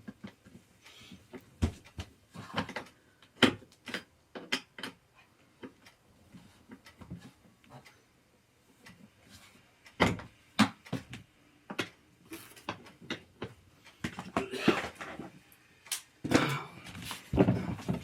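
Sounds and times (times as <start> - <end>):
chair parts knocking and clicking: 1.3 - 7.9, 9.9 - 15.4, 16.2 - 18.0.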